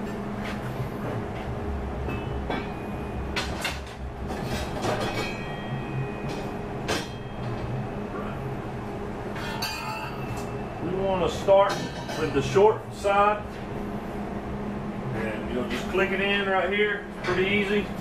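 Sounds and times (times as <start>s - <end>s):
steady low hum: 0.0s - 18.0s
steel plates clanking and scraping: 2.1s - 7.7s, 9.3s - 10.5s, 11.3s - 12.6s.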